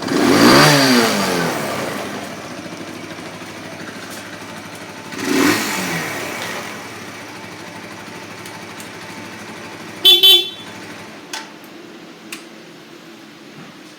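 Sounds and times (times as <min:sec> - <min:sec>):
engine shutting off with click: 0:00.0 - 0:09.9
motorcycle engine idling: 0:00.0 - 0:11.4
motorcycle horn beeps: 0:10.0 - 0:11.0.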